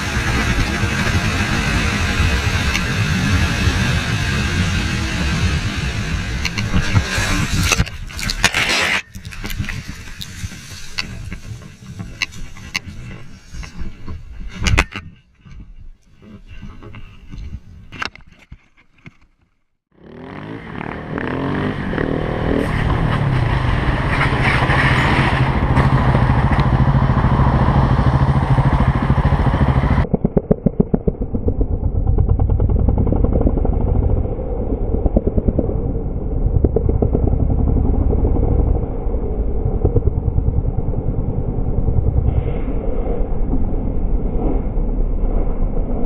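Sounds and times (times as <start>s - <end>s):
motorcycle engine running: 0.0s - 8.3s, 19.9s - 42.5s
motorcycle riding with fast pulsing: 0.0s - 17.6s, 19.9s - 46.0s.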